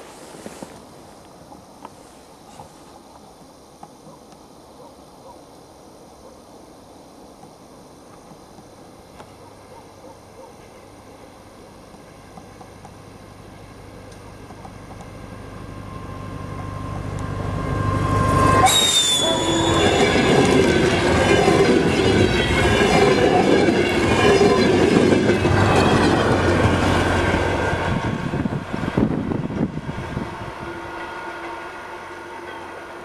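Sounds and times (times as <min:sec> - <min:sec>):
diesel train engine drone: 0:10.6 - 0:33.0
high wheel squeal: 0:15.8 - 0:24.8
train carriages clattering past: 0:17.7 - 0:28.2.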